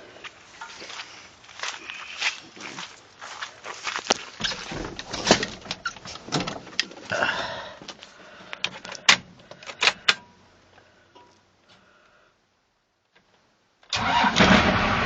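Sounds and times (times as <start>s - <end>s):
scraping rustle: 0.6s - 7.2s
sharp clicks and knocks: 4.4s - 7.1s, 7.9s - 10.3s.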